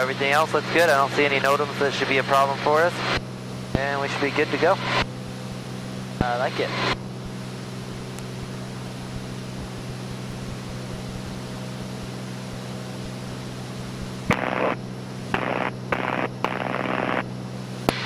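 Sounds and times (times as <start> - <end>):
aircraft engine and propeller drone: 0.0 - 18.0
crackling bursts with clicks: 8.1 - 8.3, 14.2 - 18.0.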